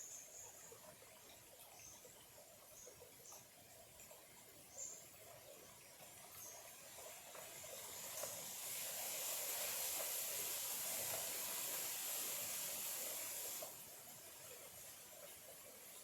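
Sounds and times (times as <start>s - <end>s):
stream trickling over stones: 0.0s - 16.0s.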